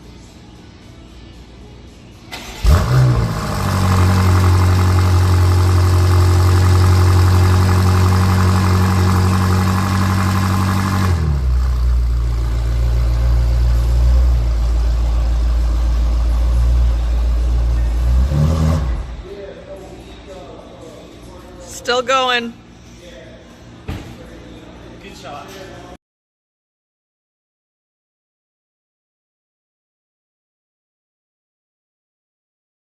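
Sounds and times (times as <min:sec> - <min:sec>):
car engine starting and idling: 0:02.3 - 0:19.3.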